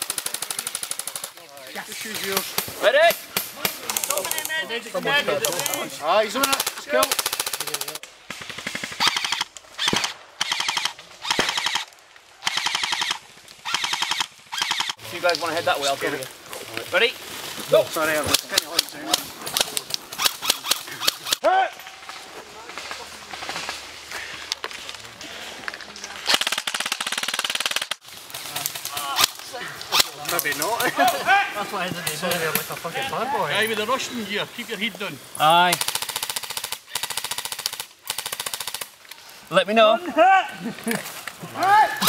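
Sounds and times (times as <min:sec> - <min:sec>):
airsoft guns firing bursts: 0:00.0 - 0:01.4, 0:05.4 - 0:15.0, 0:26.3 - 0:28.0, 0:35.7 - 0:38.9.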